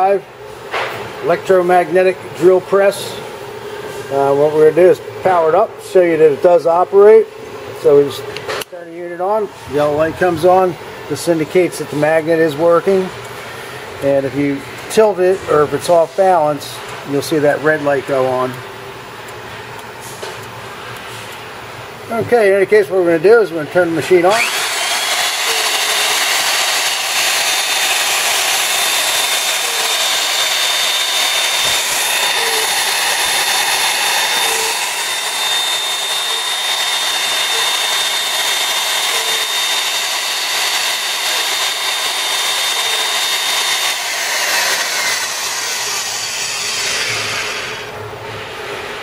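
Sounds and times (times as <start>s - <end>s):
drill press motor whining: 24.0s - 48.2s
motor spinning down: 24.1s - 48.0s.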